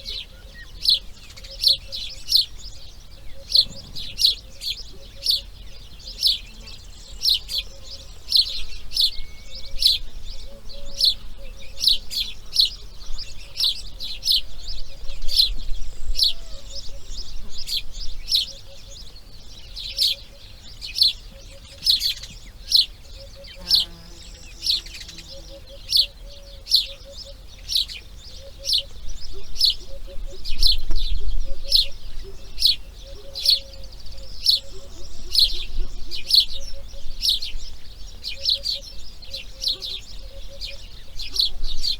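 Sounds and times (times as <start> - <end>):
bird chirping: 0.0 - 41.9.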